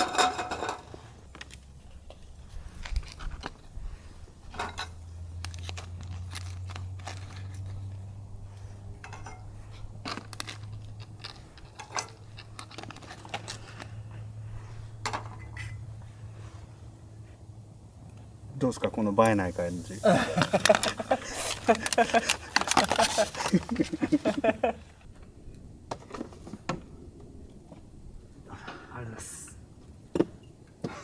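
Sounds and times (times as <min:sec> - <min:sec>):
cookware and utensils clinking: 0:00.0 - 0:00.9.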